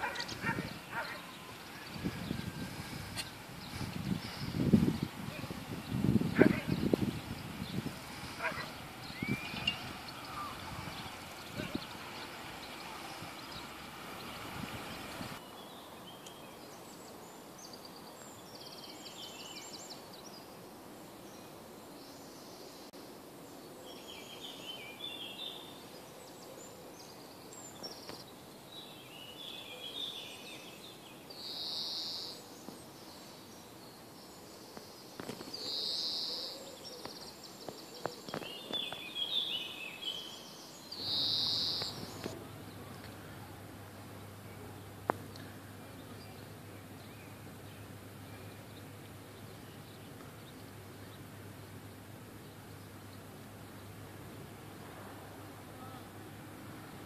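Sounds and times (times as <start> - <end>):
buzzy bird notes: 0.0 - 15.4
songbirds chirping and trilling: 0.0 - 57.0
steady background hiss: 0.0 - 57.0.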